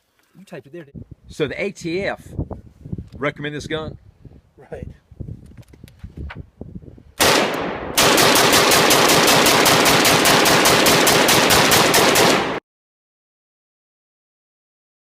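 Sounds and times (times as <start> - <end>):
loud gunshot: 7.2 - 12.6
rapid automatic gunfire: 7.2 - 12.6.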